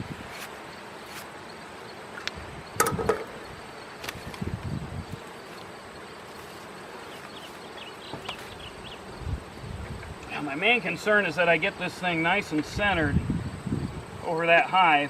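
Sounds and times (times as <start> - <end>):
honeybees buzzing: 0.0 - 15.0
equipment knocks and clatters: 2.8 - 3.4.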